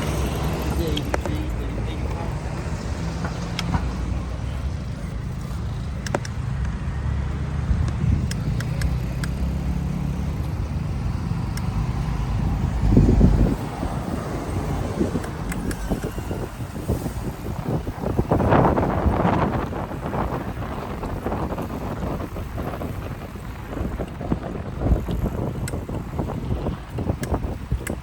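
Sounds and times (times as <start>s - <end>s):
road traffic rumble: 0.0s - 28.0s
small clicks: 7.8s - 9.6s, 11.2s - 12.2s.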